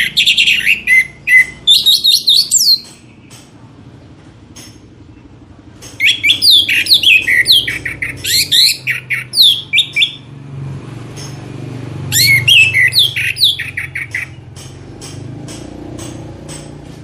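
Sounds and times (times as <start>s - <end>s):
songbird singing whistled notes: 0.0s - 3.4s, 6.0s - 10.3s, 12.1s - 14.4s.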